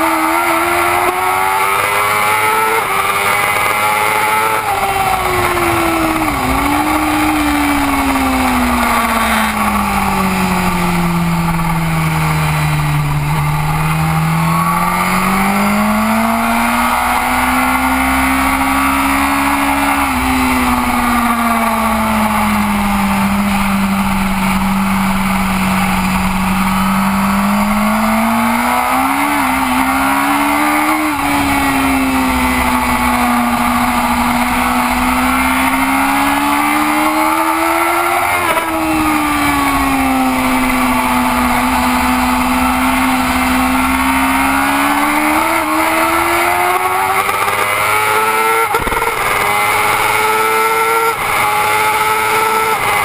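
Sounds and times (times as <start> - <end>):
racing motorcycle engine: 0.0 - 53.0
heavy wind rush: 2.8 - 15.0.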